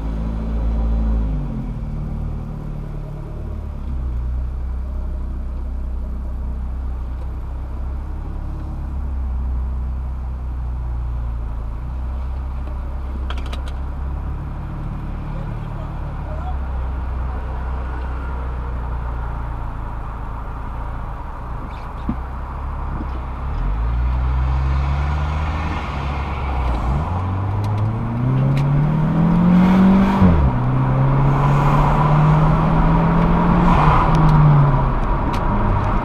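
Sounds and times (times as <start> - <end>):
car engine accelerating: 0.0 - 36.0.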